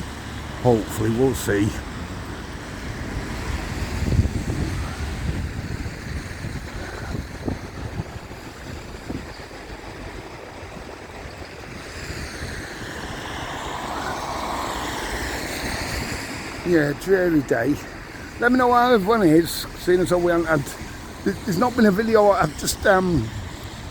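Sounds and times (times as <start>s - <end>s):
road traffic: 0.0s - 23.9s
rushing noise: 0.0s - 23.9s
wind on microphone: 2.1s - 16.7s.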